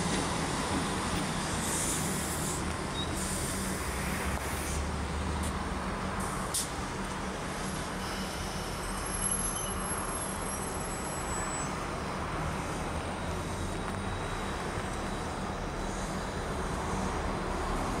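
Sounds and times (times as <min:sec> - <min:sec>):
diesel locomotives rumbling: 0:00.0 - 0:18.0
electric train: 0:00.0 - 0:18.0.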